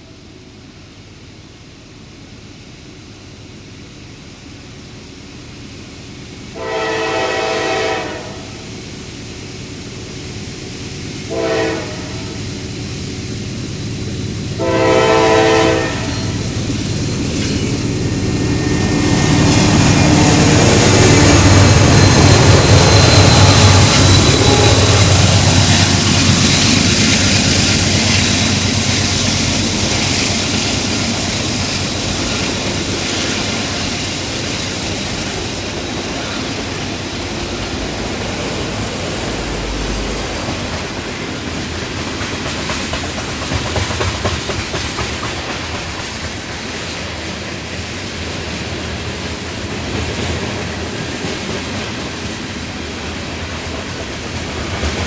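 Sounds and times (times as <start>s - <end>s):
locomotive engine: 9.4s - 46.8s
train cars clattering over rails: 14.6s - 55.0s.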